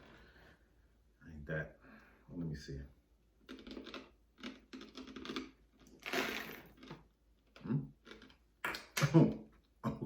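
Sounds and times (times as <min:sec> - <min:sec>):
coffee beans clicking and crunching: 0:03.4 - 0:08.4.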